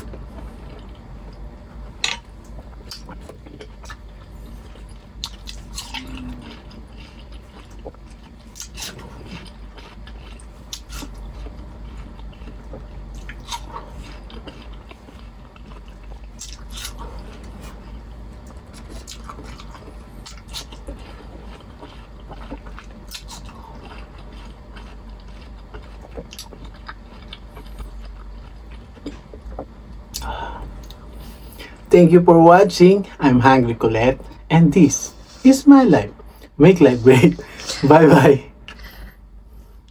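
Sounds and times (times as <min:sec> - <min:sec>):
steady low hum: 0:00.0 - 0:39.9
wet chewing and lip smacks: 0:02.4 - 0:31.1.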